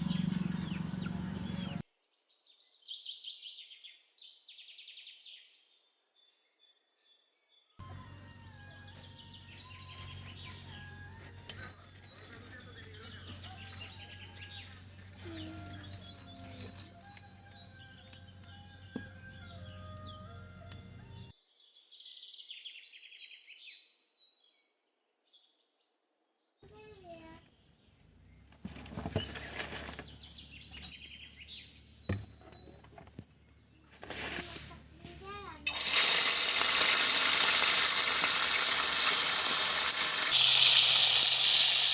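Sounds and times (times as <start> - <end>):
birds chirping and calling: 0.0 - 1.8, 8.8 - 21.3, 27.2 - 33.8
steady low hum: 0.0 - 1.8
outdoor background noise: 0.0 - 2.6, 7.8 - 21.6, 26.6 - 41.9.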